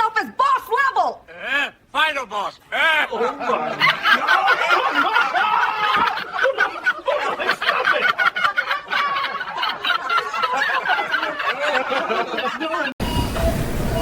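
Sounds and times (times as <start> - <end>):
people laughing hard: 3.0 - 13.0.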